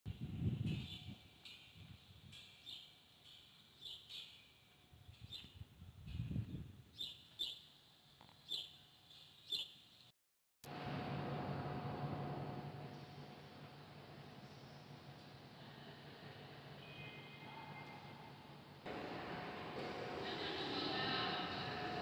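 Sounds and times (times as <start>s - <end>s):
small birds chirping: 2.4s - 5.6s, 6.9s - 7.7s, 8.4s - 9.8s.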